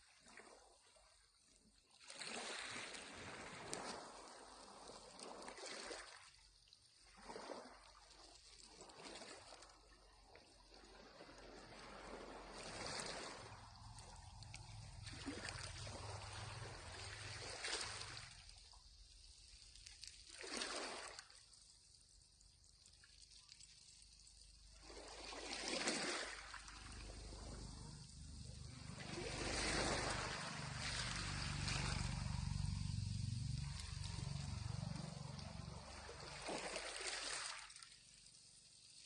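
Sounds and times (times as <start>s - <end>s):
small waves washing on shore: 0.0s - 39.0s.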